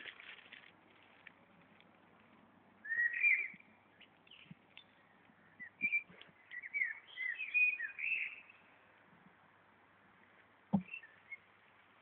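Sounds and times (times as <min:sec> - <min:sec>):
songbird singing whistled notes: 0:02.8 - 0:08.8, 0:10.8 - 0:11.5.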